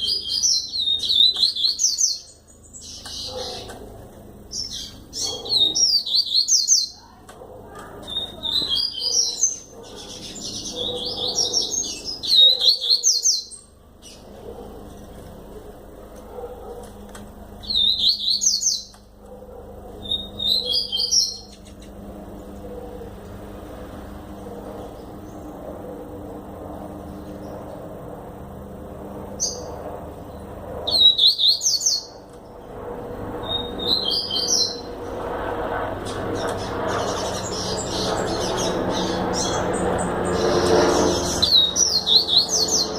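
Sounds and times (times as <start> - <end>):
bird singing high chirps: 0.0 - 3.8, 4.5 - 7.2, 8.0 - 14.3, 17.6 - 19.0, 20.0 - 21.9, 29.4 - 29.8, 30.9 - 32.2, 33.4 - 35.0, 36.4 - 42.9
low background hum: 0.0 - 42.9.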